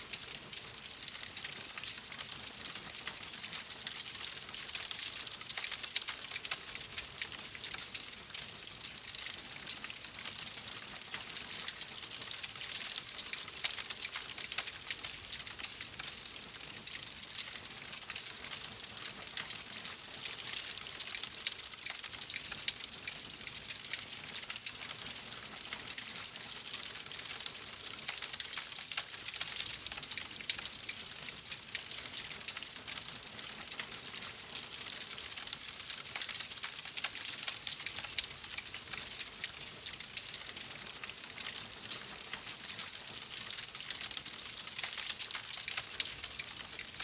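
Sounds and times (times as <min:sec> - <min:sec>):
wood fire crackling: 0:43.4 - 0:46.9.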